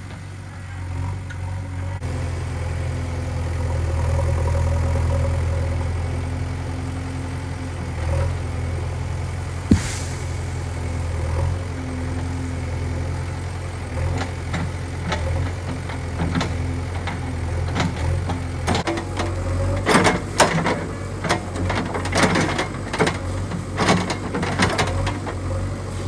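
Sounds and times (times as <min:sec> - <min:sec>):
diesel engine running: 0:00.0 - 0:26.0
sharp metal clank: 0:09.7 - 0:10.8.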